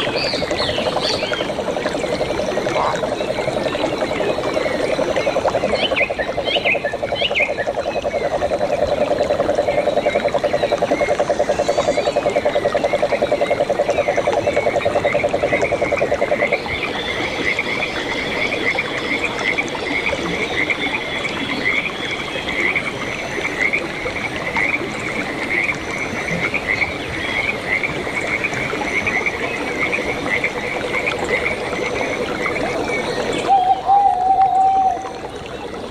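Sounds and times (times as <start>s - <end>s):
frogs low trill: 0.0s - 19.3s, 29.0s - 35.9s
frogs short higher calls: 32.0s - 35.2s.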